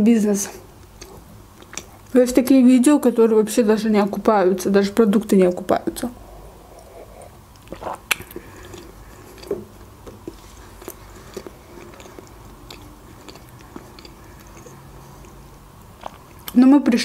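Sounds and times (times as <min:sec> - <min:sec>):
person chewing food: 0:00.8 - 0:02.1, 0:06.2 - 0:16.6.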